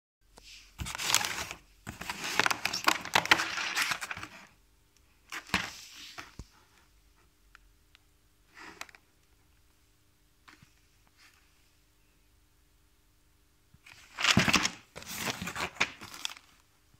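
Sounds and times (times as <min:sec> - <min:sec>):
packaging crackling and rustling: 0:00.8 - 0:04.5, 0:13.9 - 0:16.6.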